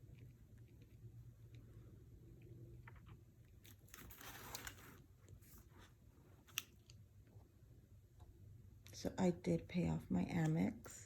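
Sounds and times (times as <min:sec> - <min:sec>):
paper rustling: 0:03.7 - 0:06.7.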